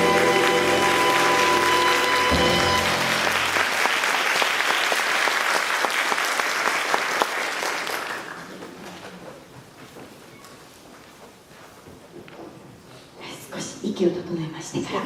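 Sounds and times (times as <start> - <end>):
band chord ringing out: 0.0 - 3.6
audience applauding: 0.0 - 9.0.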